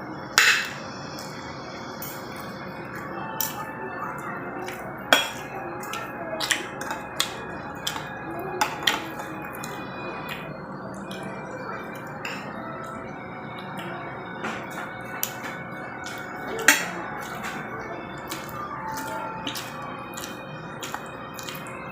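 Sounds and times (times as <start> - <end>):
steady background hum: 0.0 - 21.9
utensils clinking against dishes: 0.4 - 13.0, 13.6 - 21.9.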